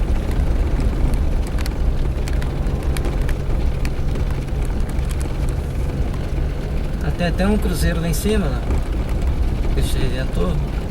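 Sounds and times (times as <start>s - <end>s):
car engine running: 0.0s - 10.9s
sharp clicks and knocks: 8.5s - 9.8s.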